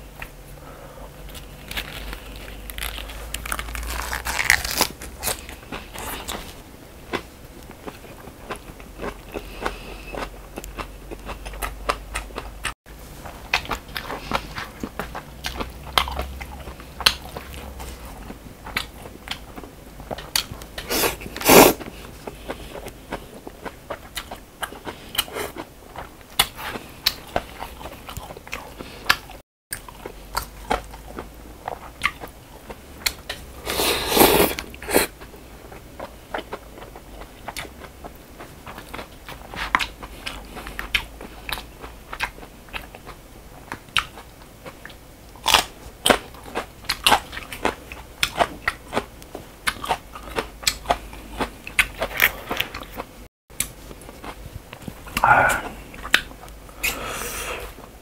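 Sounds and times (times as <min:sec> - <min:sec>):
person chewing noodles: 0:00.2 - 0:58.0
noodle slurp: 0:33.6 - 0:35.1.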